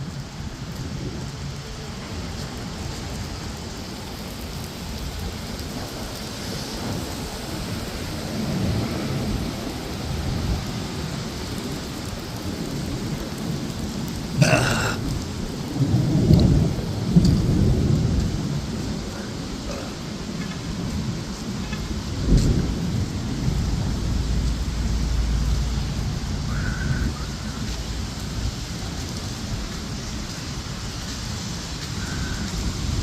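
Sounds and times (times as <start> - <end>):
steady rain: 0.0 - 33.0
thunder rumbling: 0.0 - 33.0
thunder crack: 22.2 - 27.4.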